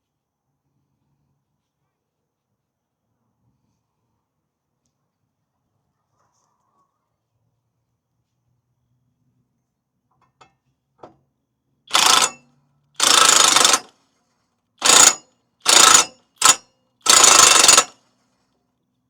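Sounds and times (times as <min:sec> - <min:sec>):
hand tool ratcheting: 0:11.9 - 0:12.4, 0:13.0 - 0:13.9, 0:14.8 - 0:18.0.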